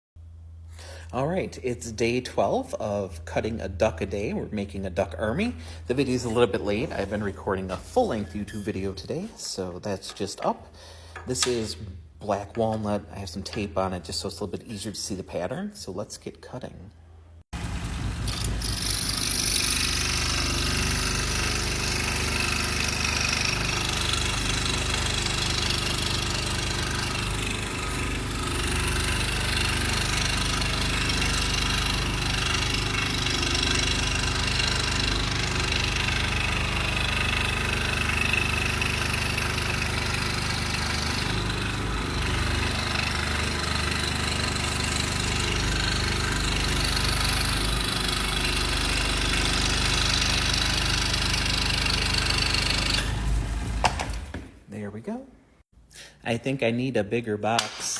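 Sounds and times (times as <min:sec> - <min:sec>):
scroll saw cutting wood: 0:05.4 - 0:10.5, 0:17.8 - 0:54.5.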